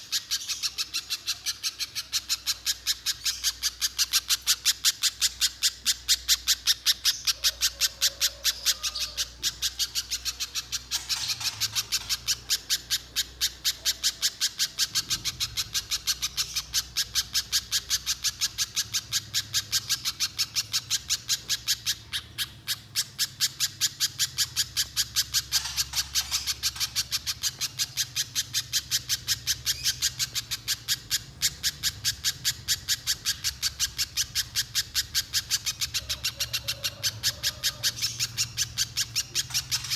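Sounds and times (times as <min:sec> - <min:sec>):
bird calling rapid high chips: 0:00.0 - 0:39.9.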